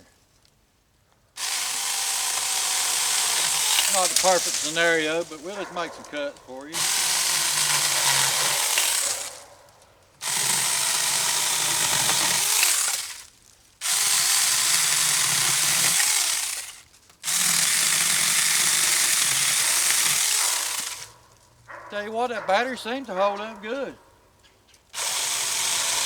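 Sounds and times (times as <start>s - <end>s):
mini chainsaw cutting wood: 1.4s - 9.5s, 10.2s - 21.3s, 24.9s - 26.0s.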